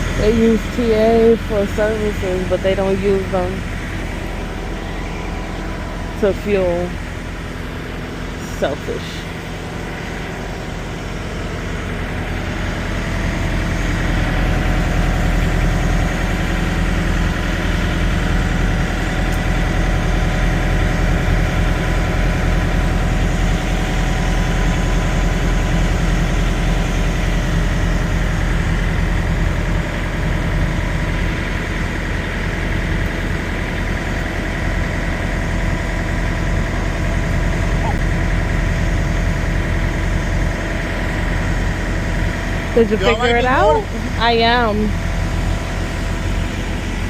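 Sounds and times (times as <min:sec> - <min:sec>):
diesel truck engine idling: 0:00.0 - 0:47.0.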